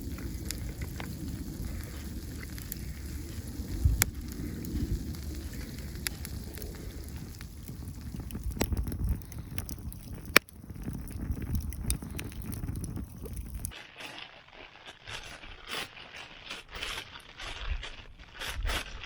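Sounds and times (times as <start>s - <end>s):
low rumble: 0.0s - 13.7s
campfire crackling and popping: 0.0s - 19.0s.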